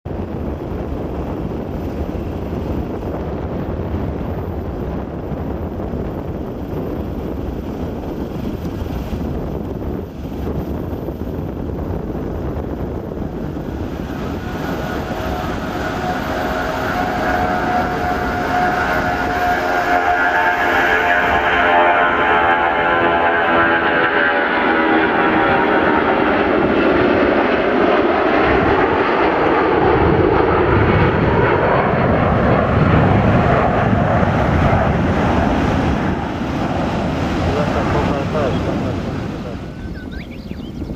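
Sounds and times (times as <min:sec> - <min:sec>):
jet engines roaring: 0:00.1 - 0:40.9
steady tones: 0:13.1 - 0:27.7.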